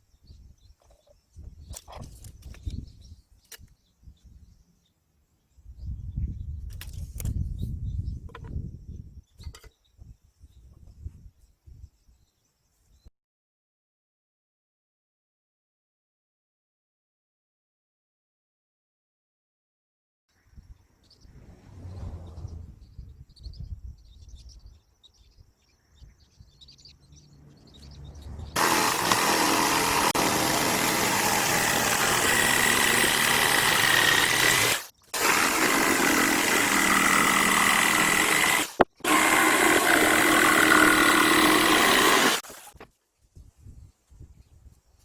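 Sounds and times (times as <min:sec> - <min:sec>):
power tool whine: 0:28.6 - 0:42.8.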